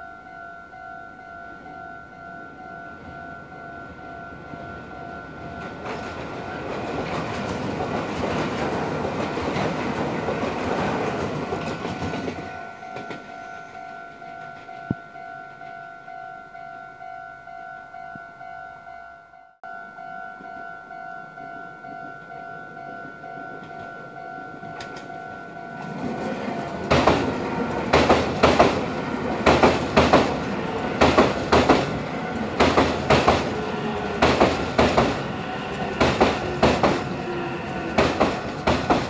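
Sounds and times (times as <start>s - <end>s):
train rumbling over bridge: 2.6s - 14.9s, 22.0s - 39.0s.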